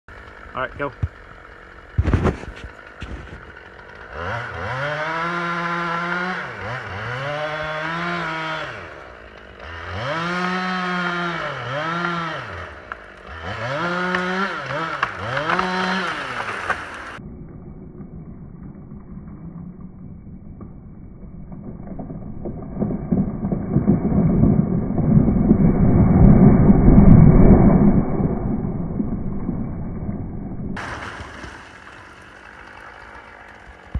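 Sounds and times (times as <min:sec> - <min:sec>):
chainsaw revving: 0:00.1 - 0:17.2, 0:30.8 - 0:33.9
muffled low rumble: 0:17.2 - 0:30.8.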